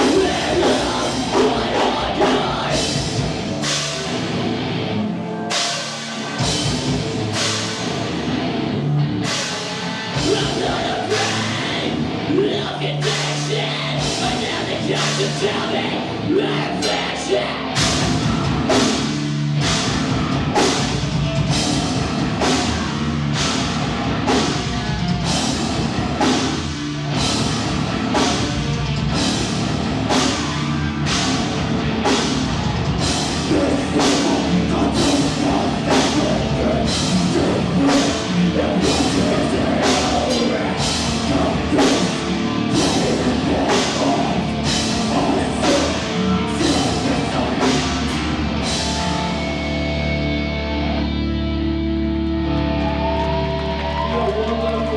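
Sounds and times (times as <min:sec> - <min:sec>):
pounding drum beat: 0:00.0 - 0:04.2, 0:17.8 - 0:49.2
live heavy rock band: 0:00.0 - 0:54.9.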